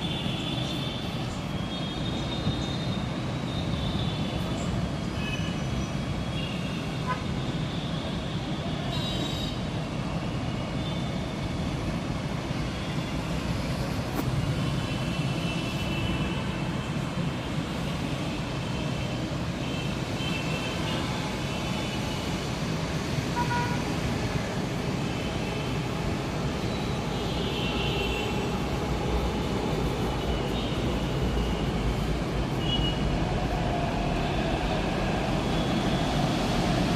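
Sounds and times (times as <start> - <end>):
metro train rumbling: 0.0 - 36.9.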